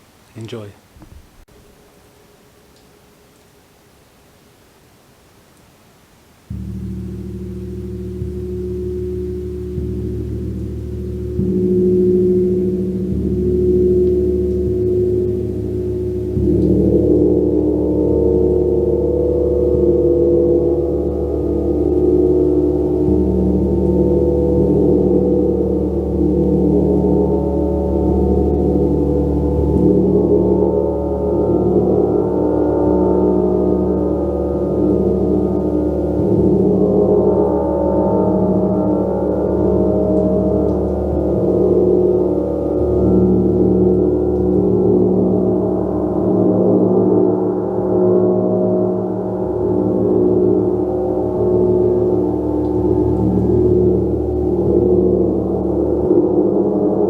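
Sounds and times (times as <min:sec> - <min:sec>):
gong played continuously: 0:06.5 - 0:57.0.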